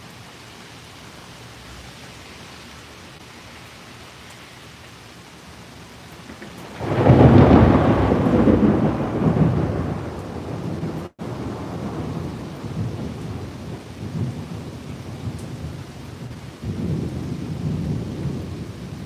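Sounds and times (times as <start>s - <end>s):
steady rain: 0.0s - 19.0s
thunder rumbling: 6.2s - 19.0s.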